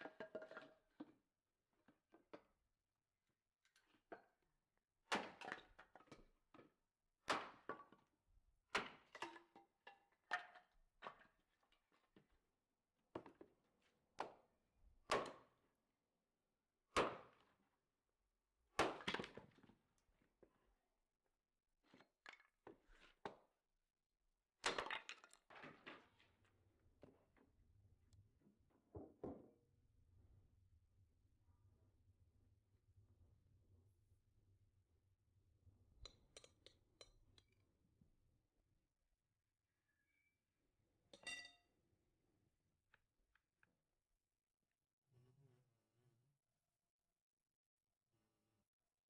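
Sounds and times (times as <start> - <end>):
knocks and thuds of kitchen work: 28.7 - 29.6.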